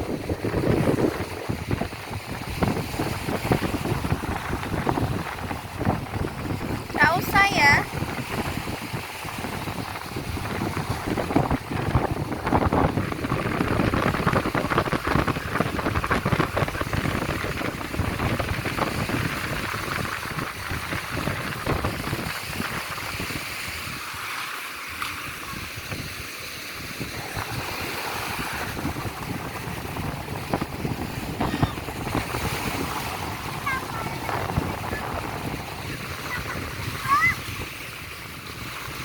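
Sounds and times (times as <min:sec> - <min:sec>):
surf washing on a beach: 0:00.0 - 0:39.0
wind buffeting microphone: 0:00.0 - 0:39.0.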